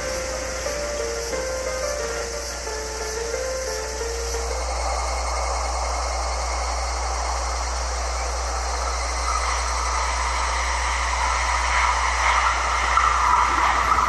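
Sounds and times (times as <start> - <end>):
constant low hum: 0.0 - 14.0
electric train running noise: 0.0 - 14.0.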